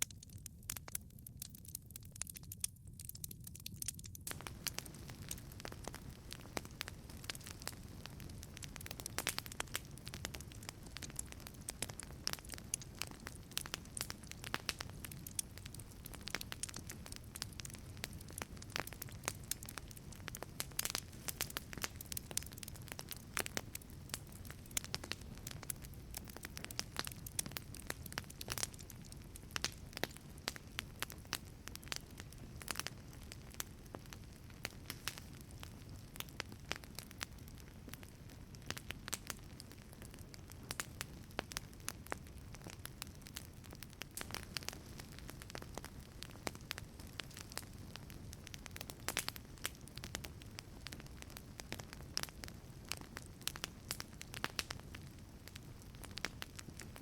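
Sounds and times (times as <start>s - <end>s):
wood fire crackling: 0.0s - 57.0s
rush of flames: 4.3s - 51.3s.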